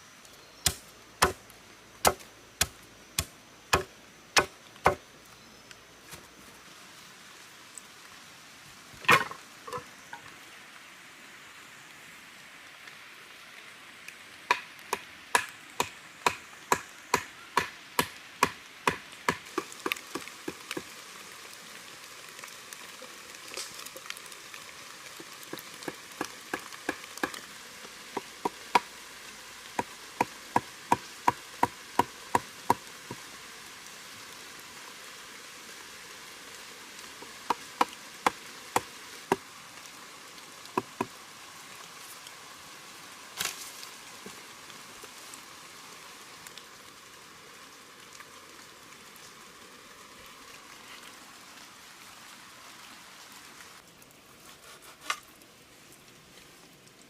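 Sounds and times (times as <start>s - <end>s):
rain hissing: 0.0s - 57.0s
blade chopping wood: 0.6s - 1.4s, 2.0s - 5.0s, 14.5s - 20.3s.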